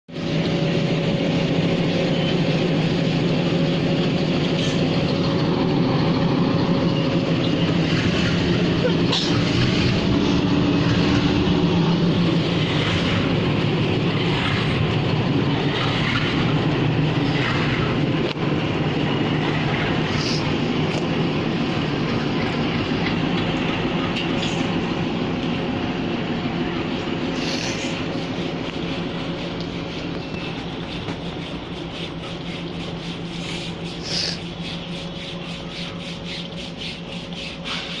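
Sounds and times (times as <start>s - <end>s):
locomotive engines rumbling: 0.1s - 38.0s
fast rubbing hiss: 27.3s - 38.0s.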